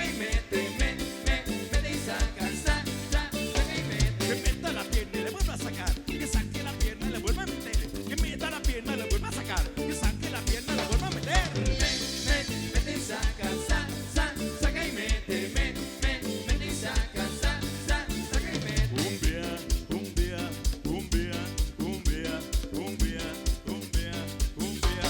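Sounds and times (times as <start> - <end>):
live band playing: 0.0 - 25.0.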